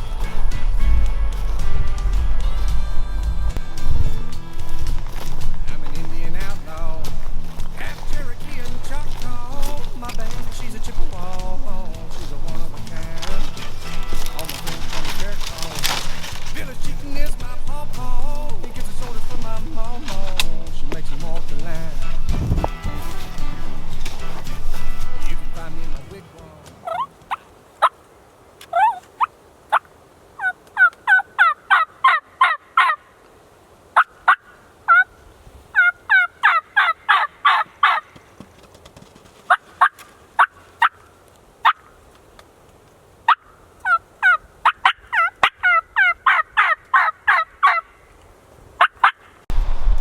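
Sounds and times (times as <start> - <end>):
turkey yelping: 26.8 - 28.0, 28.7 - 33.1, 34.0 - 35.2, 35.8 - 38.2, 39.5 - 42.0, 43.2 - 48.0, 48.8 - 49.3.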